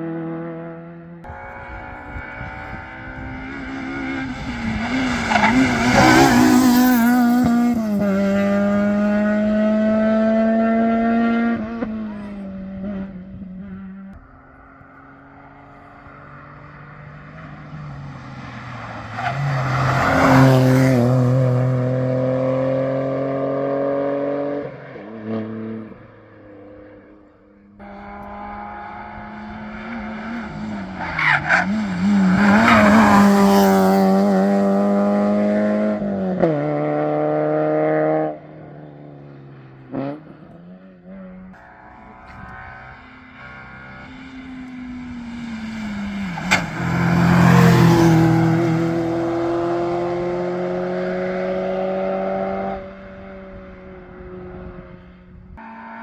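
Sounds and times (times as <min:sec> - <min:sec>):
rally car engines at full throttle: 0:00.0 - 0:56.0.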